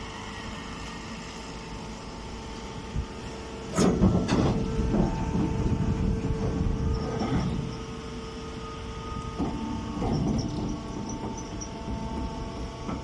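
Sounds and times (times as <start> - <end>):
hay baler humming: 0.0 - 13.0
rough mechanical clatter: 3.6 - 8.0, 9.2 - 13.0.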